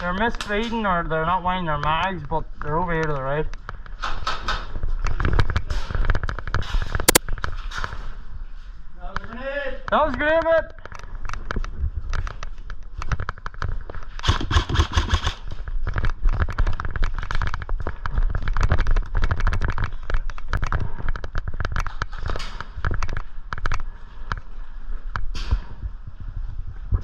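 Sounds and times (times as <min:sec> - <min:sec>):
airsoft guns firing: 0:14.2 - 0:15.4.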